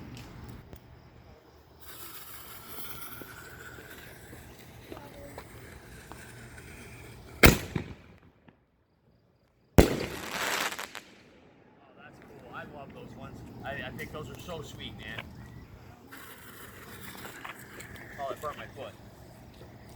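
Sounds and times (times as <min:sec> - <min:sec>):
firework hissing: 0:01.8 - 0:08.1, 0:09.8 - 0:11.6
firework bangs: 0:06.2 - 0:08.6, 0:09.8 - 0:13.0.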